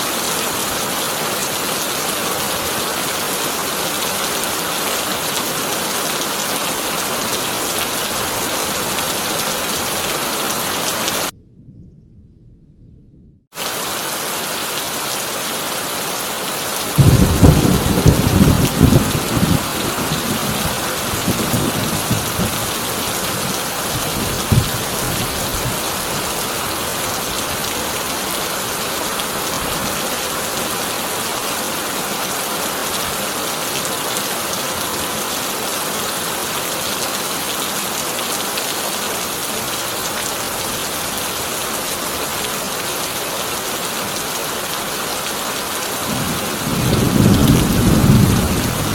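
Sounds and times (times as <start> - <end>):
rain on a tin roof: 0.0 - 11.3, 13.6 - 48.9
thunderclap rumbling: 11.2 - 13.5, 17.0 - 26.4, 46.1 - 48.9
crack of thunder: 17.0 - 22.6, 46.1 - 48.9.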